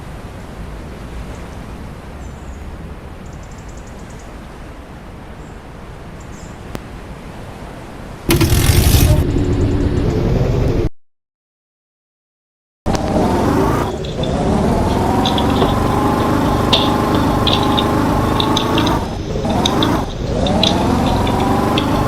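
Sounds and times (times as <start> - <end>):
vehicle road rumble: 6.7 - 10.9, 12.9 - 22.0
loud rushing noise: 8.3 - 10.9.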